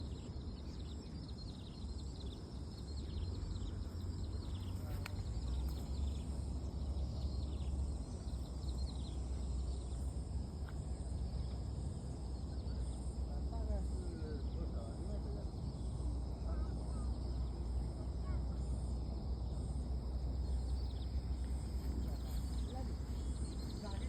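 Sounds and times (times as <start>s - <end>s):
birds chirping: 0.0s - 24.0s
low outdoor rumble: 0.0s - 24.0s.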